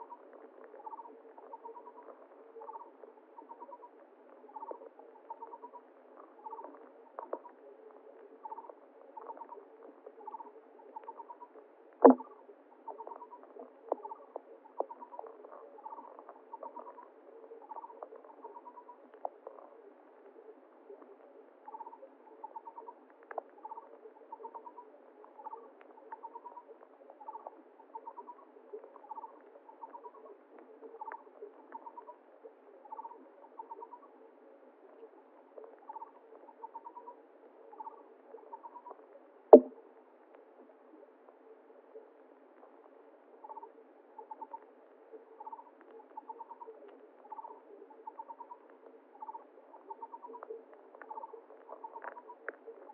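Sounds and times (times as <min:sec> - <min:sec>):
running water: 0:39.5 - 0:39.7.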